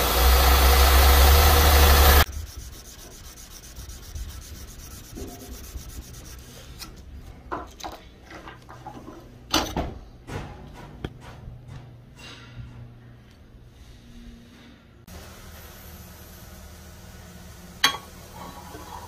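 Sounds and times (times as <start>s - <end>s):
sanding block rubbing knife blade: 0.7s - 6.8s.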